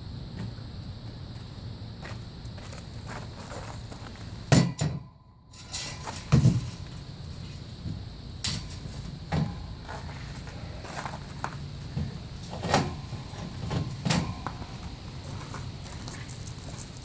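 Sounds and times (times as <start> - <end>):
metal ramps knocking and thudding: 4.5 - 6.9, 8.4 - 10.1, 11.9 - 14.8.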